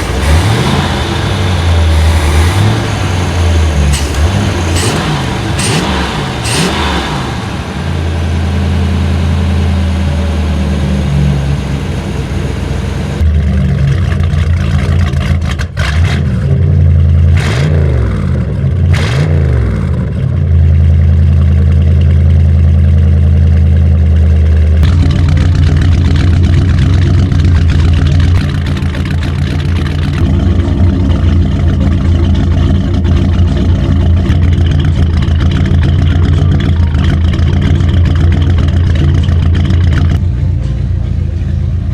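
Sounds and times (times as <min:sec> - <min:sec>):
boat engine revving: 0:00.0 - 0:16.4, 0:24.8 - 0:40.2.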